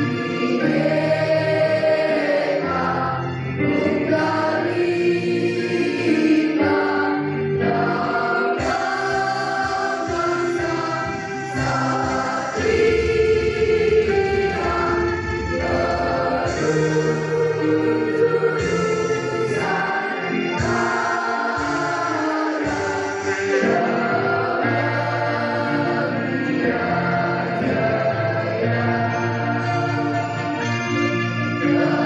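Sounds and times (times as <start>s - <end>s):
choir singing: 0.0s - 32.0s
low accompaniment line: 0.0s - 32.0s.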